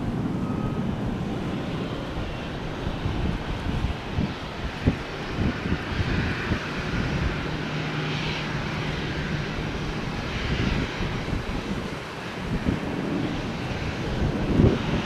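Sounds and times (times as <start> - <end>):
jet airliner engines: 0.0 - 15.0.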